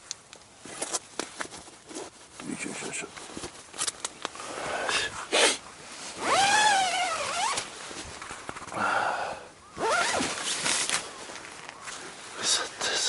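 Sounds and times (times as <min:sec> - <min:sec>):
tent fabric rustling: 0:00.6 - 0:02.4, 0:03.2 - 0:08.8, 0:09.7 - 0:12.5.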